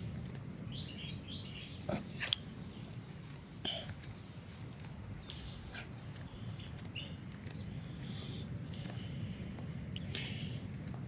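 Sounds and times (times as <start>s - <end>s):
low steady rumble: 0.0s - 11.0s
bird chirping: 0.6s - 8.4s.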